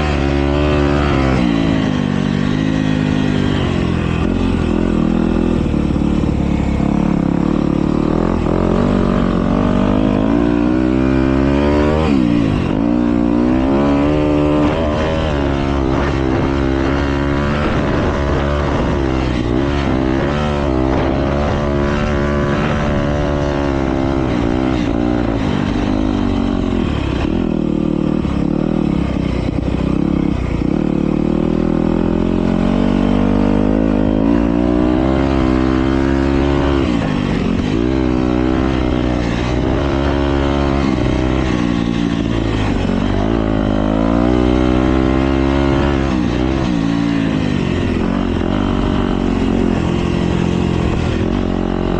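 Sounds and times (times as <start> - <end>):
motocross bike engines revving: 0.0 - 51.9.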